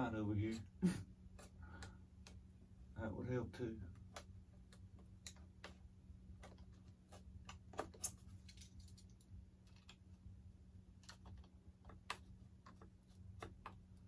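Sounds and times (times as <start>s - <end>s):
steady low hum: 0.0s - 14.0s
glued seam clicking and crackling: 10.9s - 14.0s.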